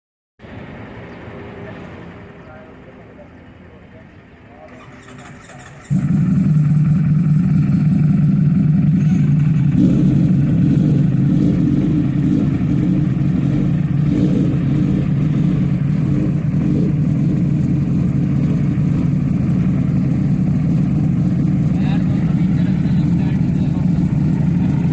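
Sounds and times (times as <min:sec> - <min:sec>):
motorcycle engine idling: 0:04.7 - 0:24.9.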